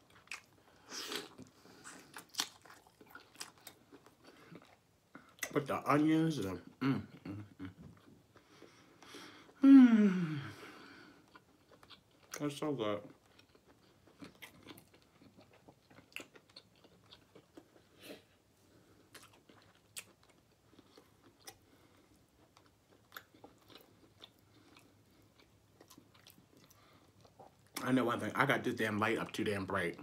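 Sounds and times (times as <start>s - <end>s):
chewing meat: 0.0s - 5.6s, 11.1s - 27.8s.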